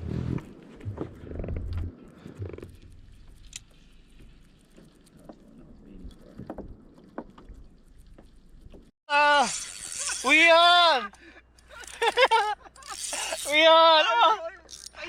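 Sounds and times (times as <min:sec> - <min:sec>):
faint wind: 0:00.0 - 0:08.9.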